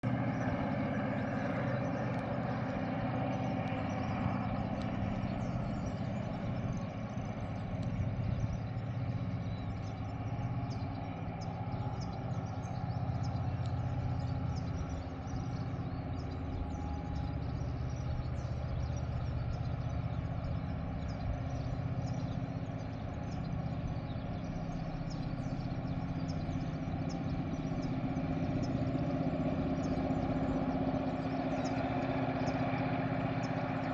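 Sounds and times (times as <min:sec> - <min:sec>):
diesel locomotives running: 0:00.0 - 0:33.9
faint sharp high ticks: 0:03.4 - 0:05.5, 0:07.6 - 0:08.0, 0:13.3 - 0:13.9.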